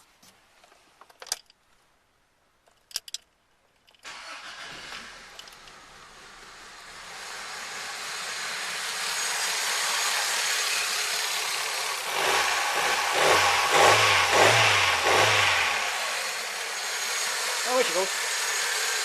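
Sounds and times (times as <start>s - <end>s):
car engine starting: 4.0s - 10.6s, 11.5s - 19.0s.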